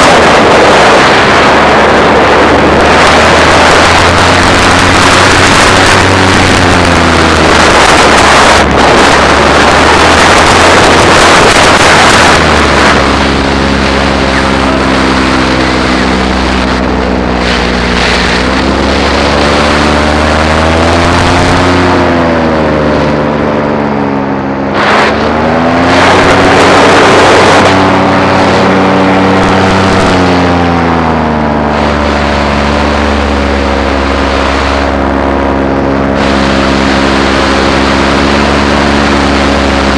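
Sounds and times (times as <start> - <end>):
paramotor engine running: 0.0 - 39.9
wind rush on microphone: 0.0 - 39.9.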